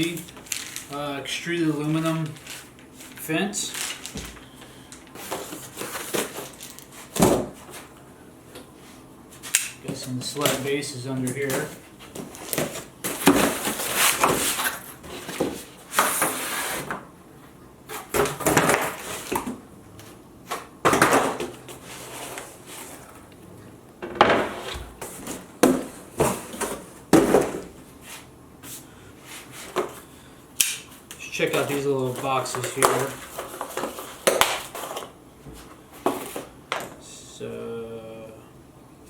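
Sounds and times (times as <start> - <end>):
packing material rustling: 0.0 - 1.0, 1.8 - 7.1.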